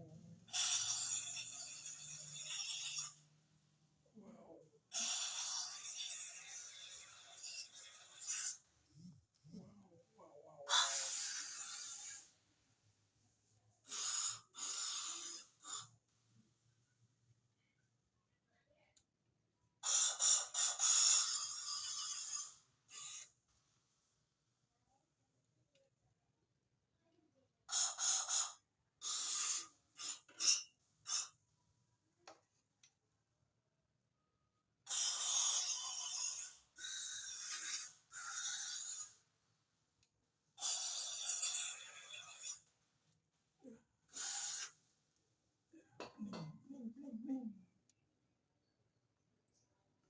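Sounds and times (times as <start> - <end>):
aerosol spray hissing: 13.9 - 15.8, 27.7 - 31.3, 44.1 - 44.8.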